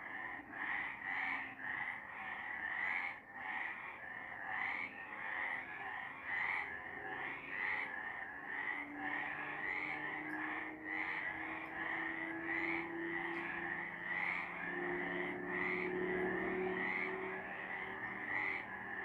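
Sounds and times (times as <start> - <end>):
frogs croaking: 0.0 - 19.0.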